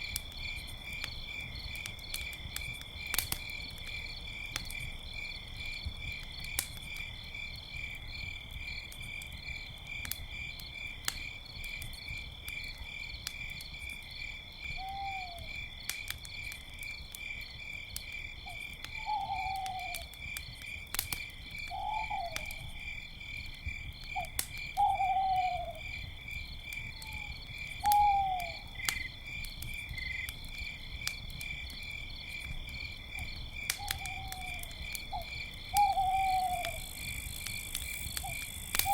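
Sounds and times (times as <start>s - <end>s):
campfire crackling: 0.0s - 38.9s
crickets chirping: 0.0s - 38.9s
owls hooting: 19.0s - 20.0s, 35.2s - 36.8s.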